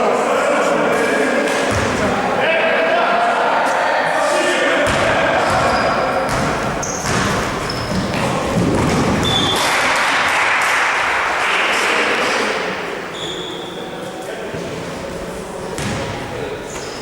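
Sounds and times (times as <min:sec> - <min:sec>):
players' voices echoing: 0:00.0 - 0:17.0
people shouting: 0:02.0 - 0:06.3
basketball bouncing: 0:04.8 - 0:09.7, 0:15.8 - 0:16.1
sneaker squeaks on court: 0:04.9 - 0:08.2, 0:08.8 - 0:09.6.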